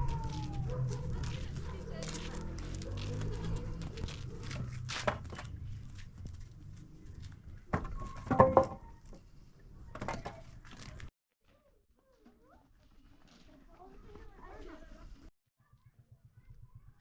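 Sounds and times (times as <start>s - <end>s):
objects knocking and clattering: 7.7s - 8.9s.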